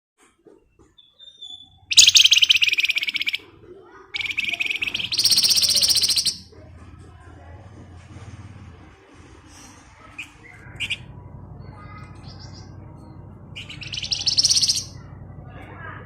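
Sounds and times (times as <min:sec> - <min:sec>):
bird singing buzzing trills: 0:01.0 - 0:03.4, 0:04.2 - 0:06.4, 0:13.6 - 0:15.0.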